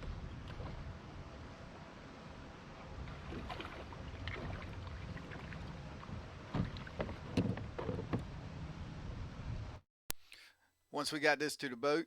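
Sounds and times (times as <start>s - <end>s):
knocks and clatter on boat: 0.0s - 0.9s, 3.0s - 8.4s
wind and water rumble: 0.0s - 9.8s.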